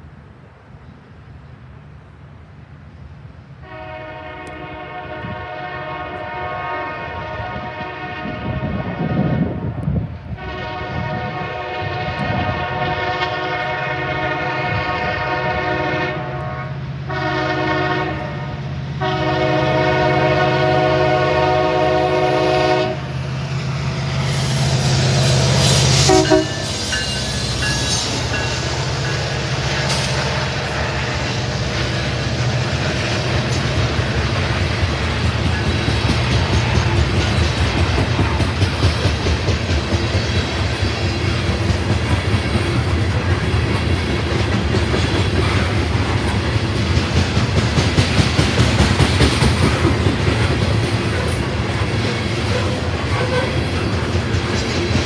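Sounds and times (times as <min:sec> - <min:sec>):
locomotive engine rumble: 0:00.0 - 0:55.0
rail and wheel noise: 0:00.0 - 0:55.0
locomotive air horn blasts: 0:03.6 - 0:09.7, 0:10.4 - 0:23.1, 0:24.8 - 0:28.0, 0:52.4 - 0:53.7
metallic wheel squeal: 0:25.2 - 0:30.1.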